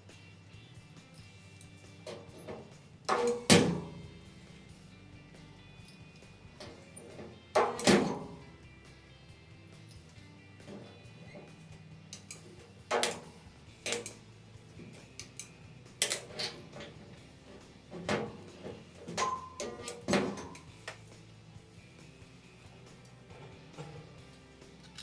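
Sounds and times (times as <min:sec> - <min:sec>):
faint background music: 0:00.0 - 0:25.0
metal tools knocking and clanking: 0:01.2 - 0:04.3, 0:05.8 - 0:08.5, 0:10.6 - 0:21.2, 0:23.0 - 0:25.0.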